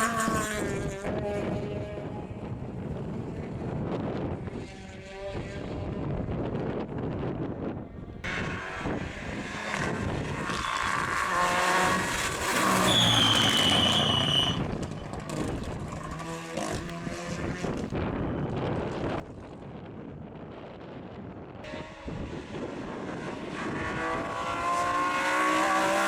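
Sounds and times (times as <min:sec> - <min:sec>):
rally car engine revving: 0:08.2 - 0:18.1, 0:21.6 - 0:26.0.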